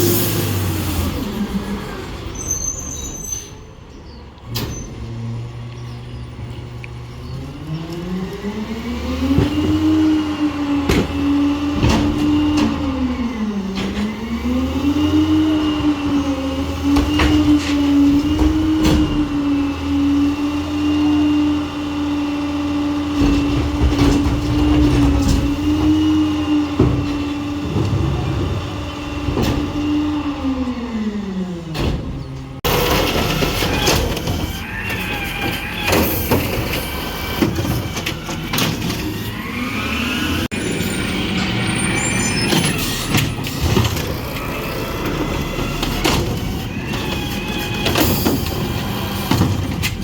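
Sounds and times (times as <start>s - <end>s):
garbage truck diesel engine revving: 0.0s - 2.6s, 4.1s - 50.0s
clanks and knocks: 23.1s - 29.9s, 43.1s - 50.0s.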